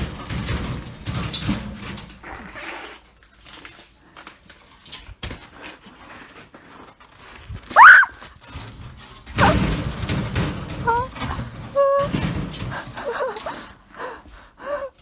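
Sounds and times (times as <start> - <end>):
animal sounds: 2.2 - 3.2
loud animal cry: 7.8 - 8.1.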